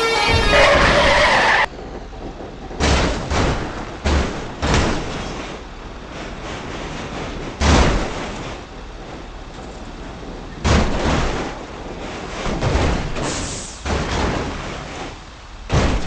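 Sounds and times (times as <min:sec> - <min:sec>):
crashing: 0:00.0 - 0:01.8
booming impacts: 0:00.0 - 0:16.0
steady rumbling noise: 0:00.0 - 0:16.0.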